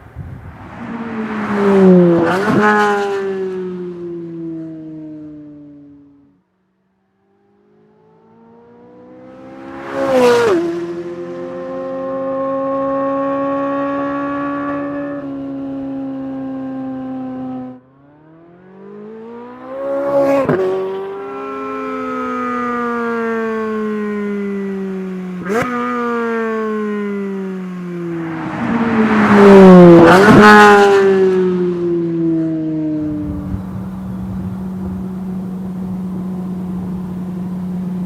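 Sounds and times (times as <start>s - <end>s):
sports car exhaust revving: 33.0s - 38.0s.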